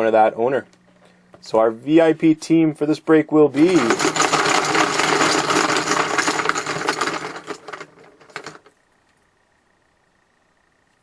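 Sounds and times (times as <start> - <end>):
objects rattling inside a helmet: 3.6 - 8.7.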